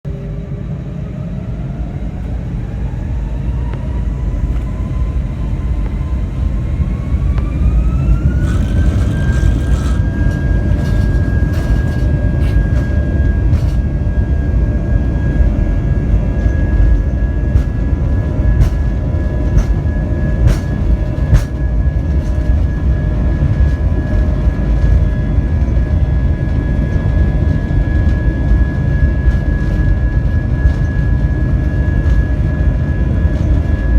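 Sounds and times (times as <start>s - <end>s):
jet engines spooling up: 0.1s - 33.9s
knocks and rattles: 8.2s - 13.9s, 17.5s - 22.8s.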